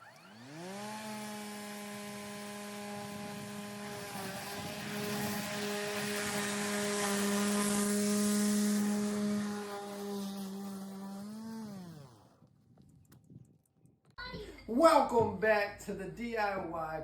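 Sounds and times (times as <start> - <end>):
electric lawnmower motor humming: 0.0 - 12.4.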